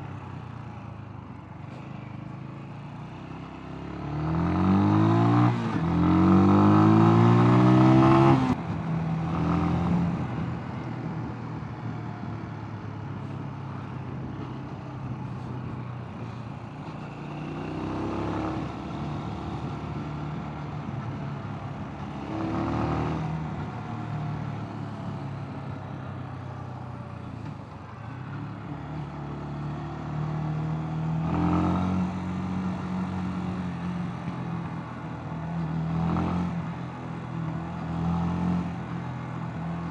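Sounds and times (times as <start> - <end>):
motorcycle engine revving: 3.9 - 8.6.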